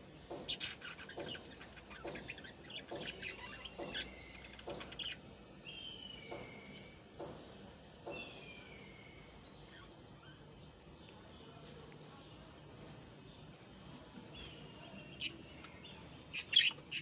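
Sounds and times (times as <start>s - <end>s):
bird chicks chirping: 0.2s - 6.8s, 14.4s - 17.0s.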